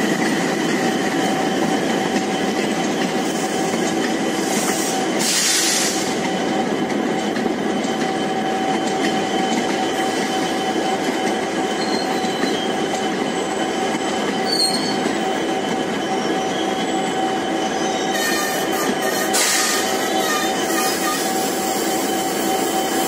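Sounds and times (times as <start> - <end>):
train wheels rumbling on track: 0.0 - 23.0
thin wheel squeal: 11.7 - 13.7, 14.4 - 23.0.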